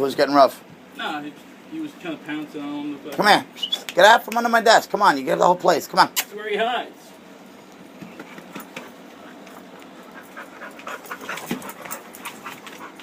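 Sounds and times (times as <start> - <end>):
dogs panting and scuffling: 8.0 - 13.0.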